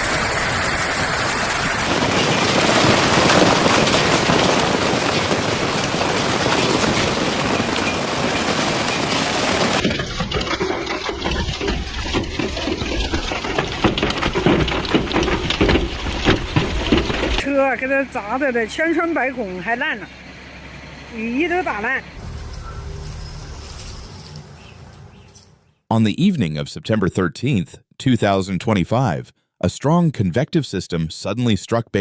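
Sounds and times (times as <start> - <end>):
heavy rain and hail: 0.0 - 17.4, 22.2 - 24.2.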